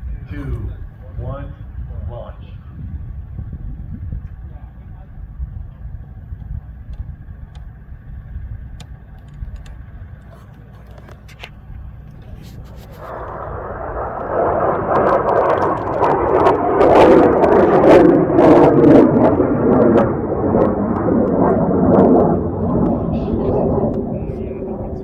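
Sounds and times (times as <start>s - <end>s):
rocket motor crackling roar: 0.2s - 25.0s.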